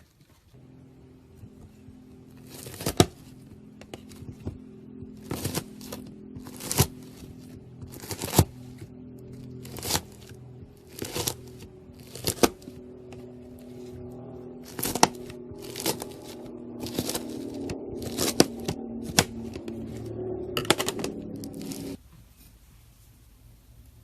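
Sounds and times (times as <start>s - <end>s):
soft background music: 0.6s - 22.0s
knife cutting crunchy slime: 2.5s - 4.5s, 5.2s - 8.8s, 9.6s - 12.8s, 14.6s - 19.8s.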